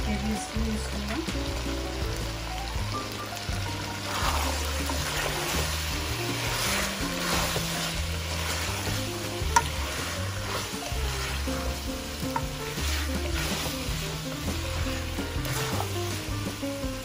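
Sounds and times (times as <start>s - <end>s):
background music with bass: 0.0s - 17.0s
food sizzling in a pan: 0.0s - 17.0s
utensil scraping a pan: 3.9s - 17.0s.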